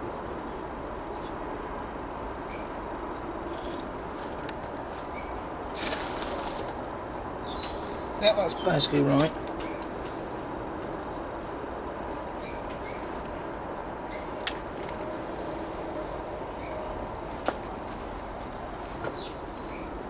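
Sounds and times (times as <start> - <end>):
high bird chirps: 5.1 - 5.4, 9.6 - 9.9, 12.4 - 13.2, 14.1 - 14.4.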